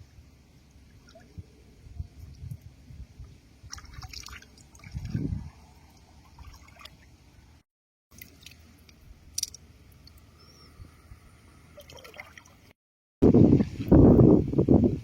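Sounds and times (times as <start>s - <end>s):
water splashing and dripping: 3.7s - 7.2s, 8.1s - 10.3s, 11.8s - 12.7s.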